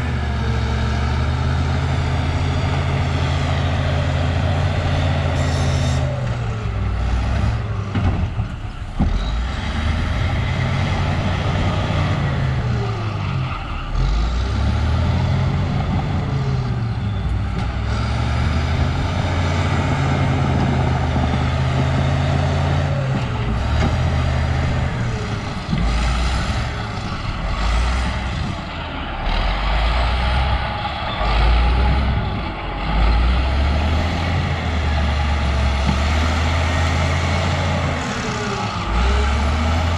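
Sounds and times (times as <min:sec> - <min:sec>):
bulldozer diesel engine working: 0:00.0 - 0:39.9.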